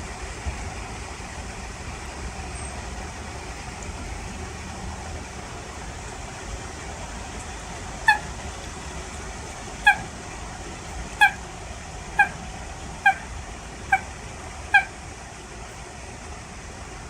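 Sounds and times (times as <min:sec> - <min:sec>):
steady background noise: 0:00.0 - 0:17.0
coot calling: 0:07.9 - 0:15.5.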